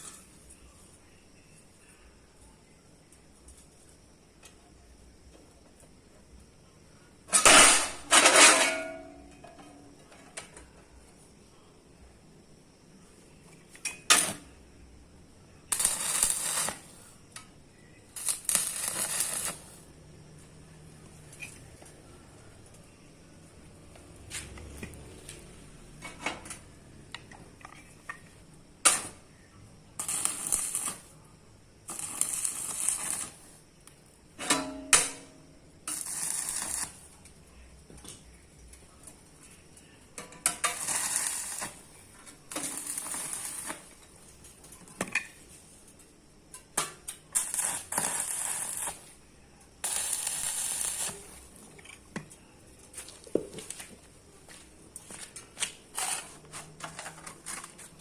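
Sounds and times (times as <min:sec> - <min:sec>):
welding crackle bursts: 0:15.7 - 0:17.1, 0:18.1 - 0:19.9, 0:28.8 - 0:29.2, 0:30.0 - 0:31.1, 0:31.8 - 0:33.6, 0:35.8 - 0:37.1, 0:40.4 - 0:44.0, 0:47.3 - 0:49.2, 0:49.8 - 0:51.5, 0:55.8 - 0:56.3.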